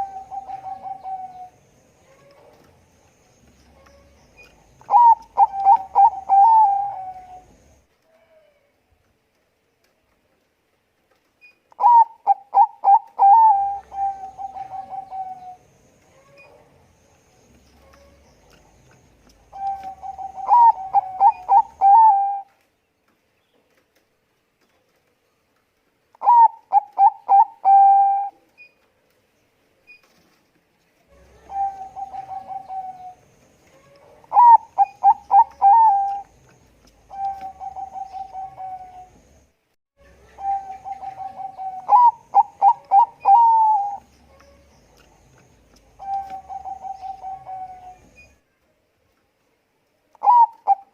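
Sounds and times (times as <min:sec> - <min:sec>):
dove cooing: 0:00.0 - 0:02.7, 0:03.8 - 0:07.6, 0:11.8 - 0:15.6, 0:19.4 - 0:22.5, 0:26.2 - 0:28.4, 0:31.1 - 0:39.2, 0:40.2 - 0:48.2, 0:50.2 - 0:50.9.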